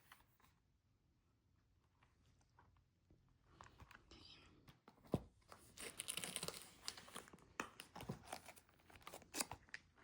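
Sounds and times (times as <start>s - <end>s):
packaging crinkling and rustling: 5.6s - 10.0s.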